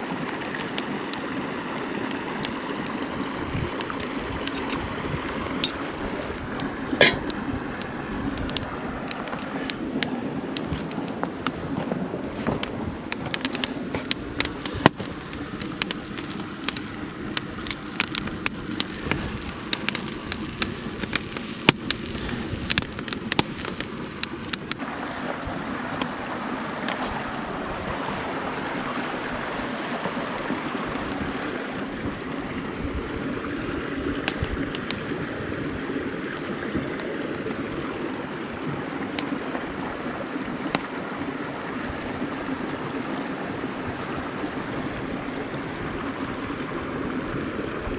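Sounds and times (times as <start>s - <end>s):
mountain stream running: 0.0s - 47.9s
sharp crackles and pops: 0.1s - 27.3s, 32.7s - 36.0s, 36.6s - 41.2s.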